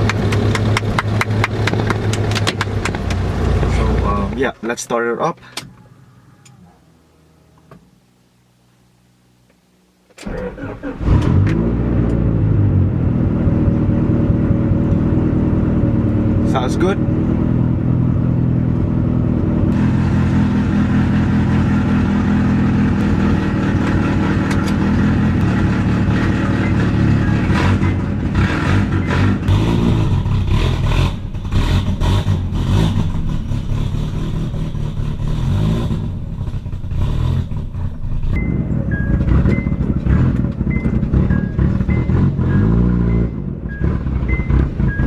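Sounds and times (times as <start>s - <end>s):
knocks and clunks: 0.0s - 4.4s
car engine idling and revving: 0.0s - 7.8s, 10.2s - 45.0s.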